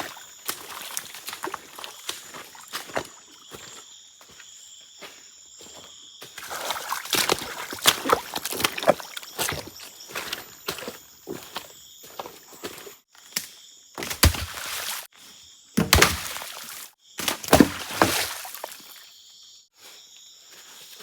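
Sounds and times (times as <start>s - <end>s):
rustling through forest litter: 0.0s - 3.8s, 14.0s - 15.2s, 15.8s - 19.0s
insects droning: 0.0s - 21.0s.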